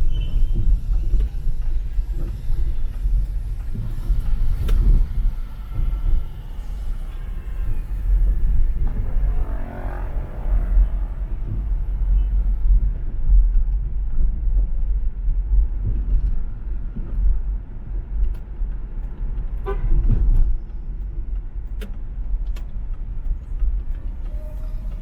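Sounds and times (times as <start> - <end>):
car driving rumble: 0.0 - 25.0.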